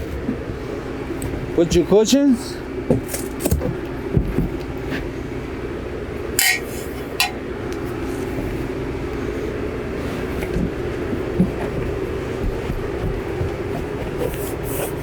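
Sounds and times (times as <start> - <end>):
steady hum: 6.1 - 9.3.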